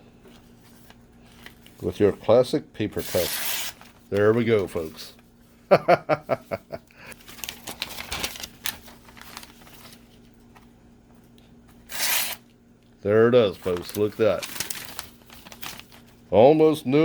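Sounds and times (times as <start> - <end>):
paper rustling: 0.2 - 2.3, 3.0 - 5.3, 7.2 - 10.7, 13.4 - 16.2
knife slicing paper: 3.0 - 4.0, 11.9 - 12.4, 13.7 - 16.0.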